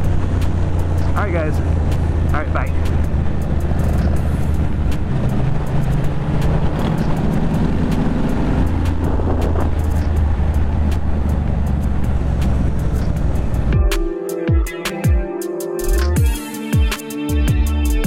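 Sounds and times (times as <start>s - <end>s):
wind rushing: 0.0s - 13.9s
motorcycle engine cruising: 0.0s - 15.2s.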